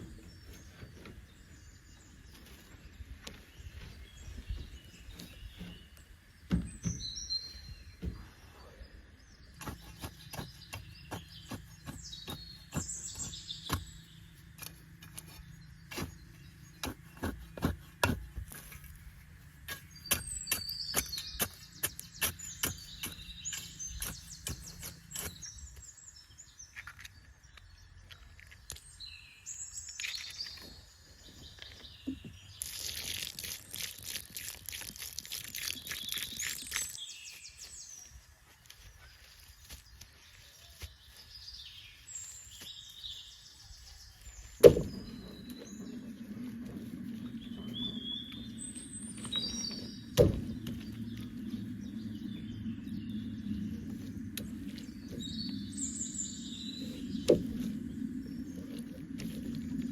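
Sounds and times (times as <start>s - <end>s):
birds chirping: 0.0s - 59.9s
low steady hum: 43.9s - 59.9s.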